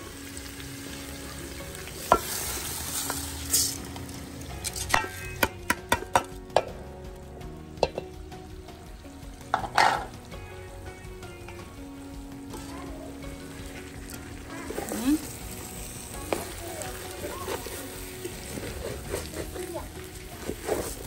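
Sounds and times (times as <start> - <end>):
dry rice poured into metal pot: 1.9 - 5.4, 13.4 - 21.0
wooden spoon scraping pot: 16.3 - 21.0.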